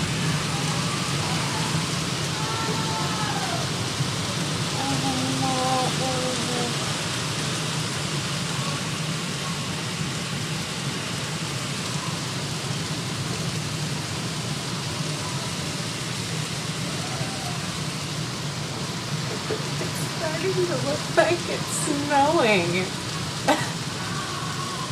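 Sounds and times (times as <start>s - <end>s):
hail pelting down: 0.0s - 24.9s.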